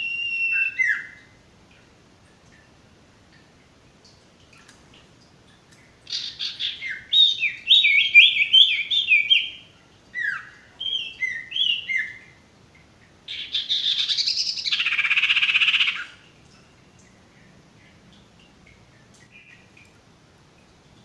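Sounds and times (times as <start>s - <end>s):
songbird whistled notes: 0.0s - 1.2s.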